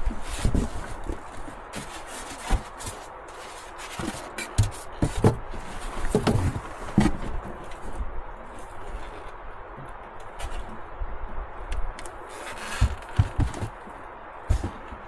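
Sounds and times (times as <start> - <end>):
irregular knocks and thuds: 4.0 - 7.6, 12.8 - 15.0.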